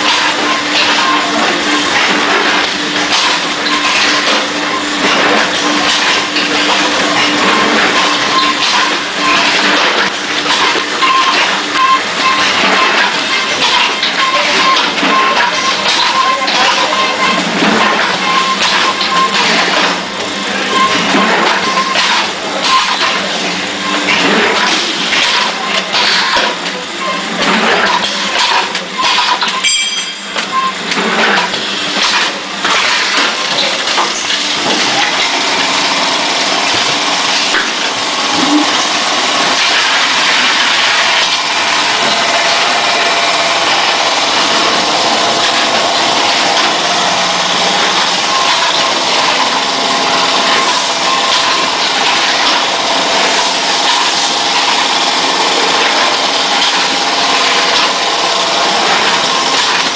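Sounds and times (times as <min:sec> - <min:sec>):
packaging machine running: 0:00.0 - 0:59.9.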